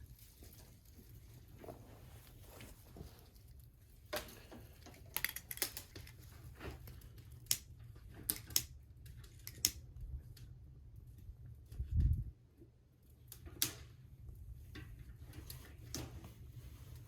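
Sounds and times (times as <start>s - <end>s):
twigs snapping and crackling: 4.1s - 6.3s.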